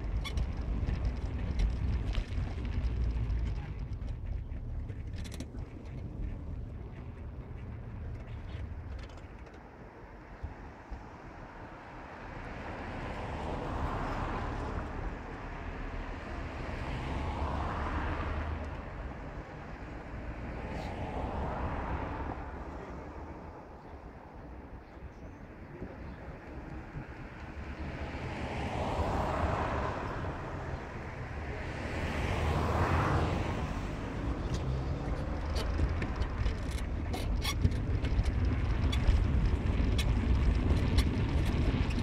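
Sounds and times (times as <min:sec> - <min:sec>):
tyre noise: 0:00.0 - 0:09.6, 0:25.8 - 0:42.0
car engine and road rumble: 0:00.0 - 0:42.0.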